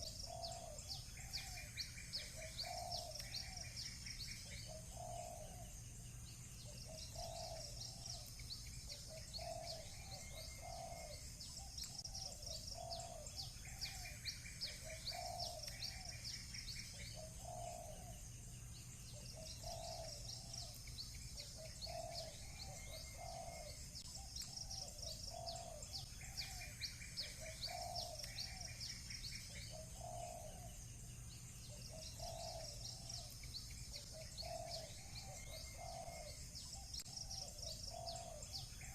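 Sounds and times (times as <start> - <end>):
dove cooing: 0.0 - 5.7, 6.6 - 18.2, 19.1 - 30.8, 31.7 - 38.9
buzzy bird trills: 0.0 - 38.9
small birds chirping: 0.0 - 38.9.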